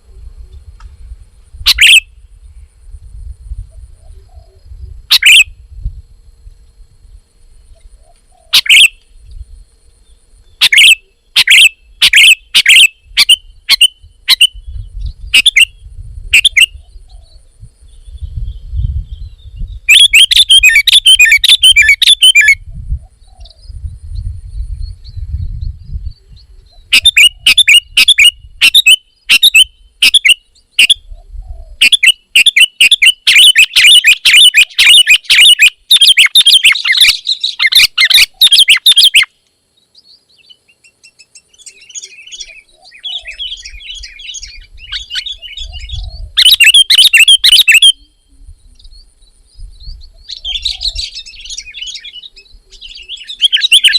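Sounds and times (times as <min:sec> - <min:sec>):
bird rapid repeated chirps: 0:01.7 - 0:02.1, 0:05.1 - 0:05.4, 0:08.5 - 0:09.0, 0:10.6 - 0:14.7, 0:15.3 - 0:15.8, 0:16.4 - 0:16.8, 0:19.9 - 0:22.6, 0:26.9 - 0:31.0, 0:31.8 - 0:39.3, 0:40.4 - 0:48.1, 0:50.2 - 0:53.9.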